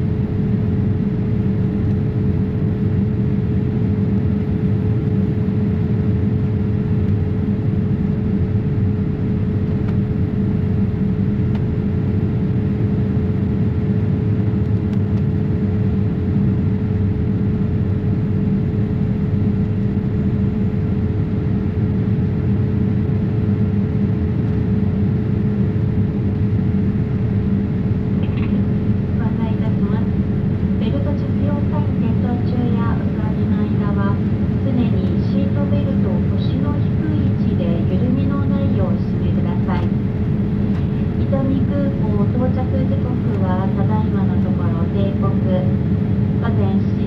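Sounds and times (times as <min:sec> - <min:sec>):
engine and airflow rumble: 0:00.0 - 0:47.0
steady cabin hum: 0:00.0 - 0:47.0.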